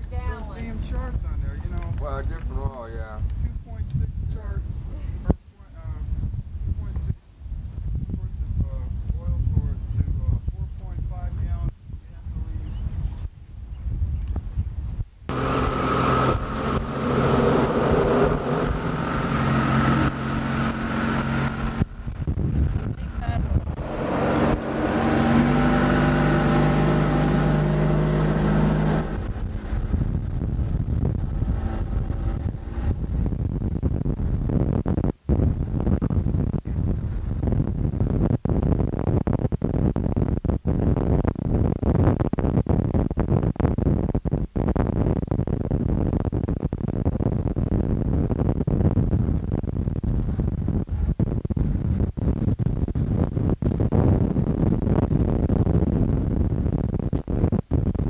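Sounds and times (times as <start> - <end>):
boat motor running: 15.3 - 42.4
rushing wind and water: 15.3 - 58.0.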